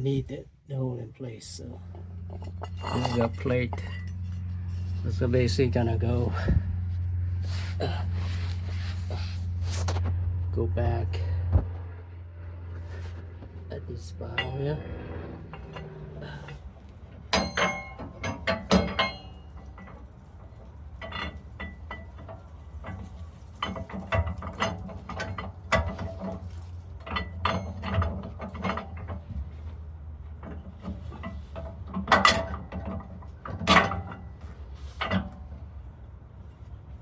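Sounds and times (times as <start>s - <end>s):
low steady hum: 0.0s - 37.0s
metal hardware clanking: 1.6s - 6.7s, 12.8s - 36.9s.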